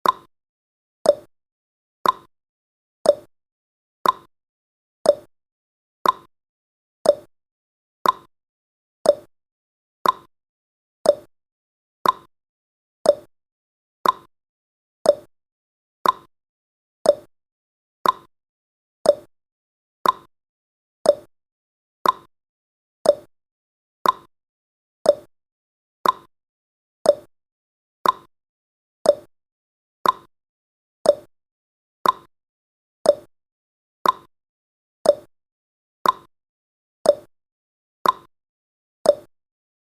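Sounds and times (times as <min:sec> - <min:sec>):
clock ticking: 0:02.0 - 0:02.3, 0:04.0 - 0:04.3, 0:06.0 - 0:06.3, 0:08.0 - 0:08.3, 0:10.0 - 0:10.3, 0:12.0 - 0:12.3, 0:14.0 - 0:14.3, 0:18.0 - 0:18.3, 0:20.0 - 0:20.3, 0:22.0 - 0:22.3, 0:24.0 - 0:24.3, 0:26.0 - 0:26.3, 0:28.0 - 0:28.3, 0:29.1 - 0:29.3, 0:30.0 - 0:30.3, 0:31.1 - 0:31.3, 0:32.0 - 0:32.3, 0:33.1 - 0:33.3, 0:34.0 - 0:34.3, 0:35.1 - 0:35.3, 0:36.0 - 0:36.3, 0:38.0 - 0:38.3, 0:39.1 - 0:39.3.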